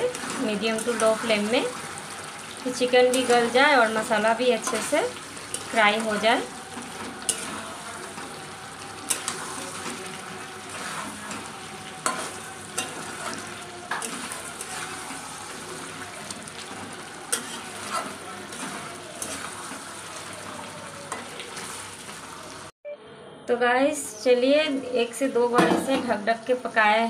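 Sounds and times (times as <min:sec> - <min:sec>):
chicken sizzling in a pan: 0:00.0 - 0:22.7
spatula scraping and knocking pan: 0:10.7 - 0:15.8, 0:16.7 - 0:19.8.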